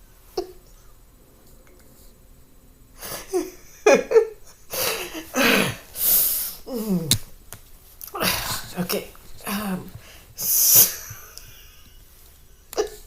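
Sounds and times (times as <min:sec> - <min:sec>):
woman laughing helplessly: 0:03.0 - 0:05.6.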